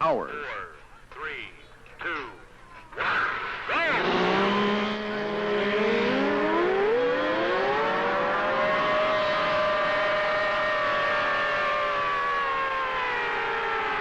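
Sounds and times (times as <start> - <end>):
racing outboard motors accelerating: 3.6 - 14.0.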